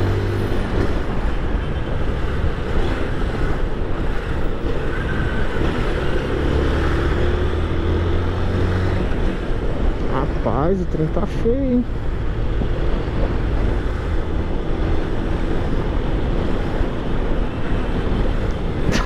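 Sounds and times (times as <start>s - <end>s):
wind noise on microphone: 12.0s - 19.0s.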